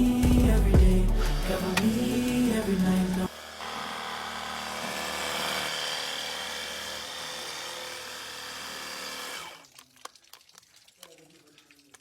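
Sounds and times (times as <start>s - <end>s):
motor-driven machine hissing: 1.0s - 6.2s.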